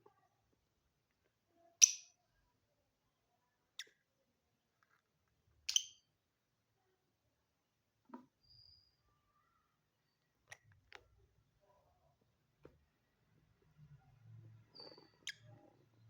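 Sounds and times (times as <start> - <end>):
lovebirds chirping: 14.6 - 16.0.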